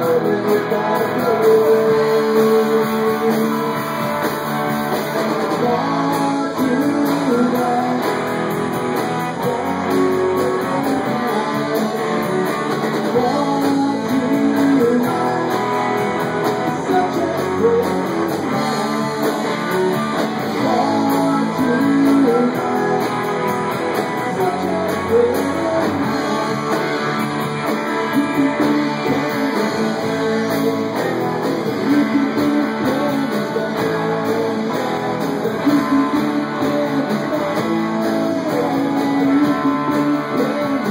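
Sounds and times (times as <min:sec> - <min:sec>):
guitar plucked and strummed: 0:00.0 - 0:40.9
live band playing instrumental: 0:00.0 - 0:40.9.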